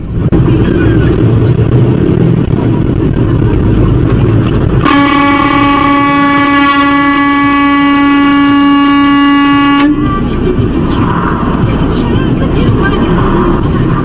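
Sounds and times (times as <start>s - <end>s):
road noise: 0.0s - 14.0s
vehicle engine rumble: 0.0s - 14.0s
long vehicle horn blast: 4.8s - 10.4s.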